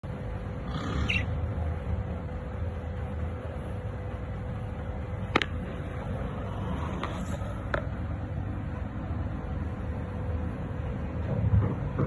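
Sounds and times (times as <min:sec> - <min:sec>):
low background rumble: 0:00.0 - 0:12.0
budgerigar chirp: 0:00.7 - 0:01.4.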